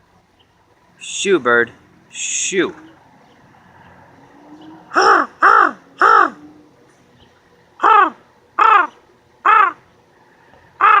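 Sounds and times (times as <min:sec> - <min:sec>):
man imitating crow caws: 0:04.9 - 0:06.5, 0:07.8 - 0:09.8, 0:10.8 - 0:11.0.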